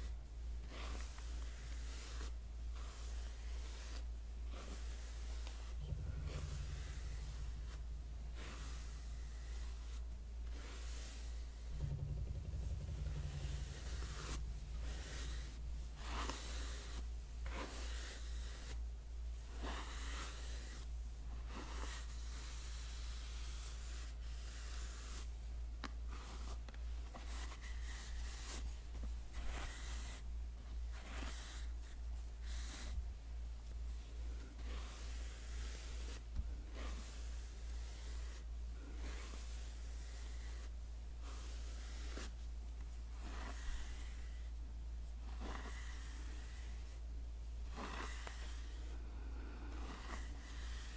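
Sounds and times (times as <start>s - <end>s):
hairbrush swishing strokes: 0.0s - 18.8s, 43.1s - 47.0s, 47.7s - 49.0s.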